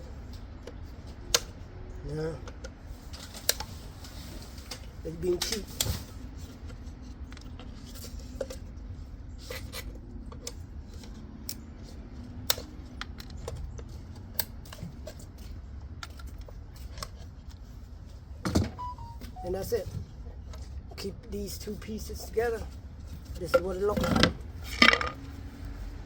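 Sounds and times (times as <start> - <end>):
low steady hum: 0.0 - 23.6
small clicks and light scraping: 2.4 - 8.7, 9.4 - 17.7.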